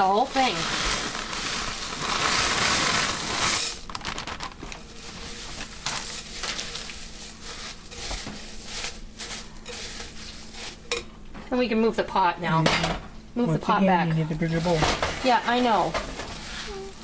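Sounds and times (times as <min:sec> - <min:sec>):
noodles crackling and clicking: 0:00.0 - 0:08.2
plastic bag crinkling: 0:00.0 - 0:10.8, 0:14.5 - 0:17.0
dry noodles rustling into bowl: 0:00.0 - 0:11.0, 0:15.6 - 0:17.0.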